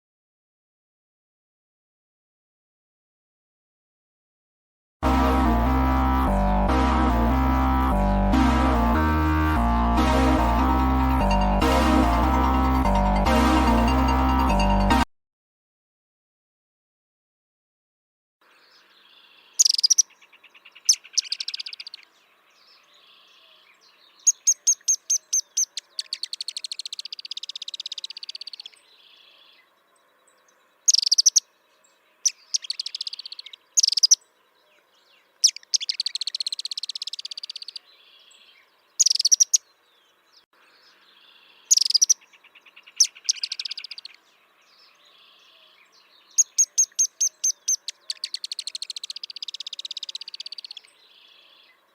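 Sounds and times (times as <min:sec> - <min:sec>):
bird singing with buzzy trill: 0:18.7 - 0:51.9.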